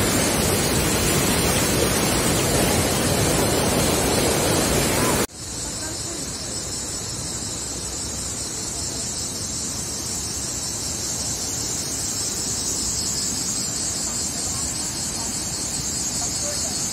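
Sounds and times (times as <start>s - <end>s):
waterfall roaring: 0.0s - 5.3s.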